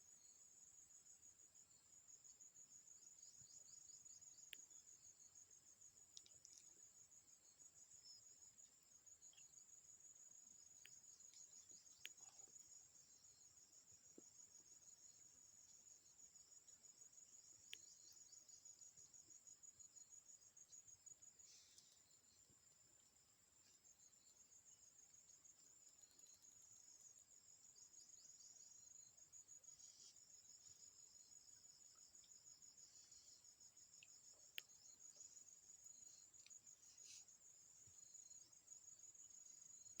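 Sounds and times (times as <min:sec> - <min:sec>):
insects chirping: 0:00.0 - 0:40.0
crickets trilling: 0:00.1 - 0:40.0.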